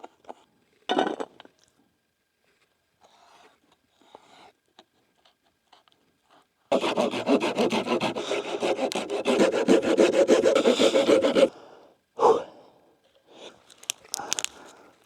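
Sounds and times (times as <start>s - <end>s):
hand saw cutting wood: 6.7s - 11.6s.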